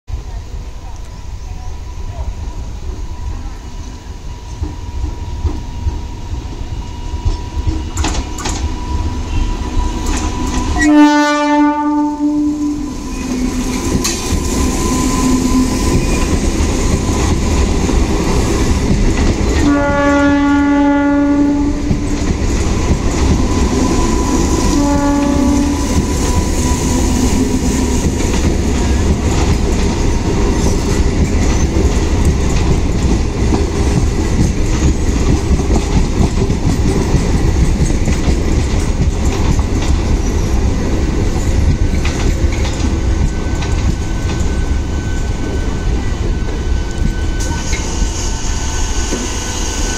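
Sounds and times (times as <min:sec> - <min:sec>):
train wheels rumbling and clattering: 0:00.3 - 0:49.9
train horn blasts: 0:09.2 - 0:16.3, 0:19.6 - 0:22.1, 0:23.7 - 0:27.7.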